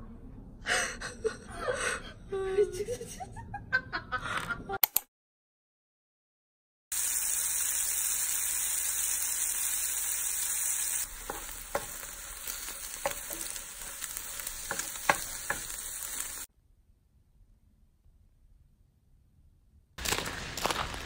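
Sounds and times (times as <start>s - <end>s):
food sizzling in a frying pan: 6.9s - 16.5s, 20.0s - 21.0s
spatula scraping and tapping pan: 11.2s - 16.4s.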